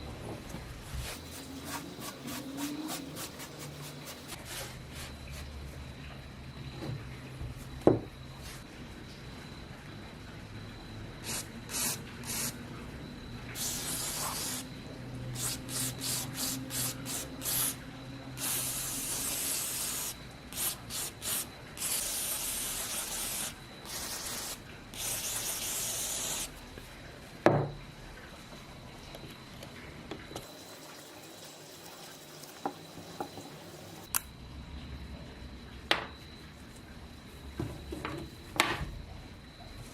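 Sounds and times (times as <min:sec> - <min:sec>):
aerosol spray can hissing: 0:11.2 - 0:12.6, 0:13.6 - 0:14.7, 0:15.4 - 0:17.8, 0:18.4 - 0:26.5.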